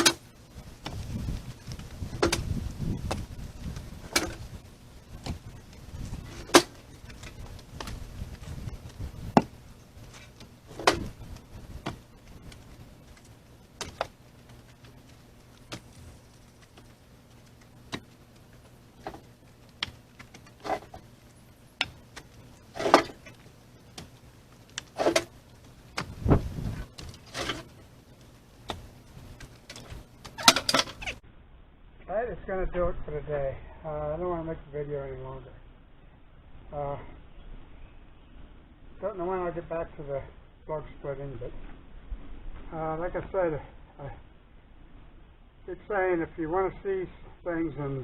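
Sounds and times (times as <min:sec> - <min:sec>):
firewood clunking onto a pile: 0:02.1 - 0:03.3, 0:06.2 - 0:08.5, 0:09.3 - 0:13.2, 0:19.0 - 0:21.1, 0:21.8 - 0:24.1, 0:24.8 - 0:25.3.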